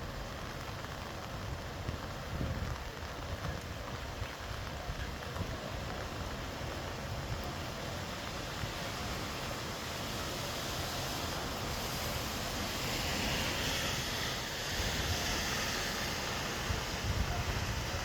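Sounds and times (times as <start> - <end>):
floodwater rushing: 0.0 - 18.0
wind buffeting microphone: 0.2 - 9.7, 14.8 - 18.0.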